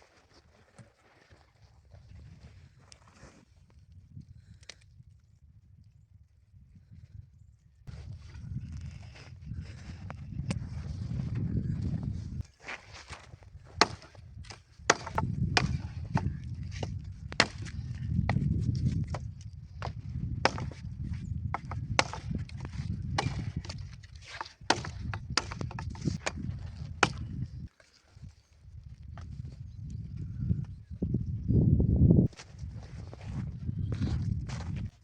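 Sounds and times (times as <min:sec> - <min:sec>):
wood cracking and snapping: 0:21.5 - 0:27.3.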